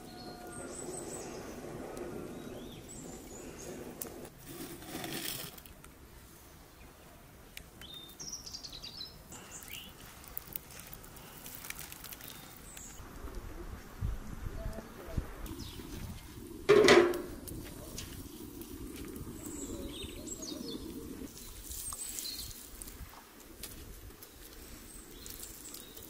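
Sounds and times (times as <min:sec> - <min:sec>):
small birds chirping: 0:00.0 - 0:04.3, 0:06.3 - 0:13.0, 0:14.5 - 0:16.6, 0:17.6 - 0:22.9, 0:24.4 - 0:26.0
rustle: 0:00.0 - 0:26.0.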